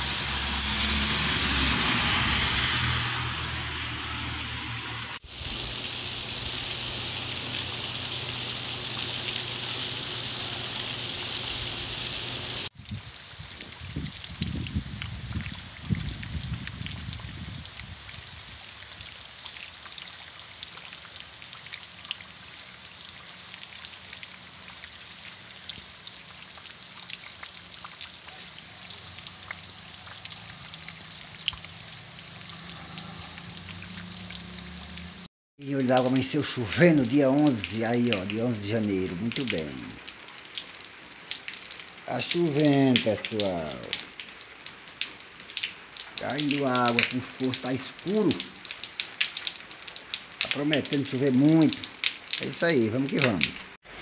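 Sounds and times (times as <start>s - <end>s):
heavy rain hissing: 0.0s - 12.7s, 28.1s - 35.3s, 42.1s - 44.0s, 46.2s - 48.6s
raindrops ticking: 12.6s - 53.8s.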